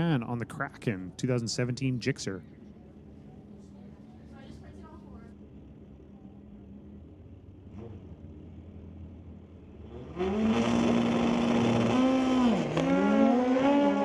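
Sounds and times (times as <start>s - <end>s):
motorcycle engines revving loudly: 9.8s - 14.0s.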